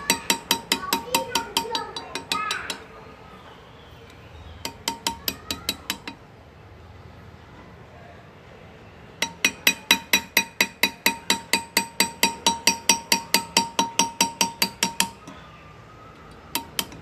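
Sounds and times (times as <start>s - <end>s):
hammer tapping graver into metal: 0.0s - 2.9s, 4.6s - 6.2s, 9.2s - 15.4s, 16.2s - 17.0s.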